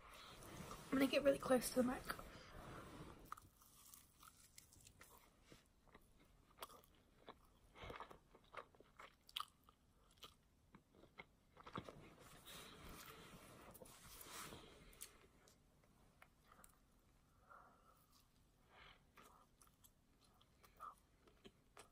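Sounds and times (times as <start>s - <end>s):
chewing with mouth clicks: 5.9s - 12.4s.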